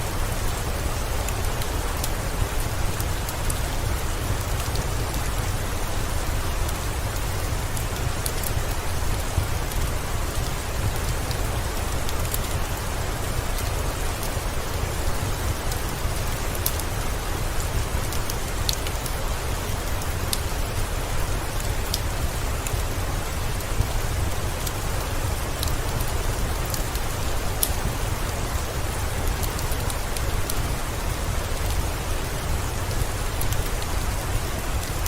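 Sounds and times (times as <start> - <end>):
steady rain hiss: 0.0 - 35.0.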